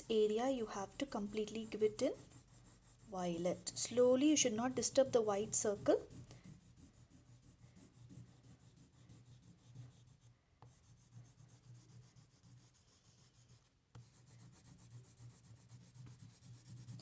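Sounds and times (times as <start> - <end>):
low steady hum: 0.0 - 8.8
crayon scratching on paper: 0.0 - 17.0.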